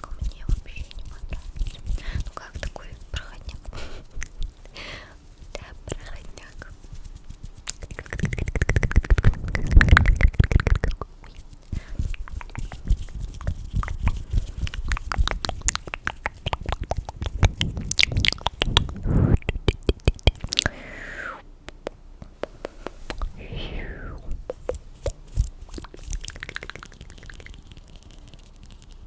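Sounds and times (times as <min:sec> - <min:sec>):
low rumble: 0:16.6 - 0:21.4, 0:23.2 - 0:24.5
wet clicks and crackles: 0:25.0 - 0:29.0.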